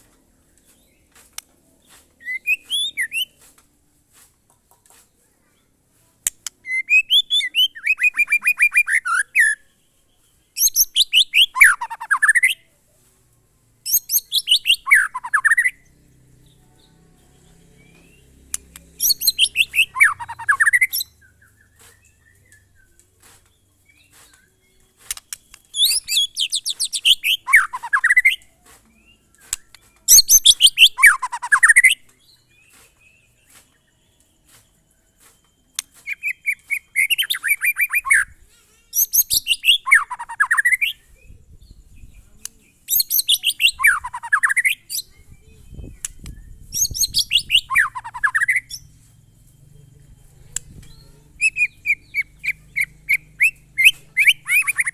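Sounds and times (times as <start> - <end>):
bird singing falling phrase: 14.2 - 22.9, 43.2 - 54.9.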